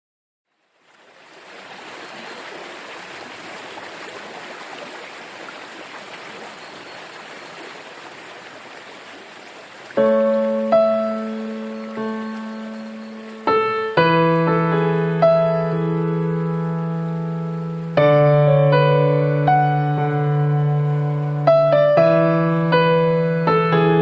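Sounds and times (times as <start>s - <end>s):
stream water flowing: 0.5s - 23.5s
piano notes: 10.0s - 24.0s.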